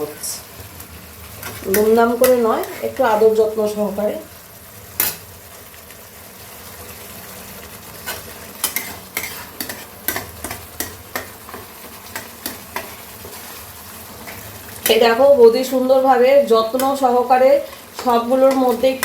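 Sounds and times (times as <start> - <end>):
fish sizzling in a pan: 0.0 - 19.0
utensil tapping and scraping pan: 1.4 - 3.0, 8.0 - 13.5.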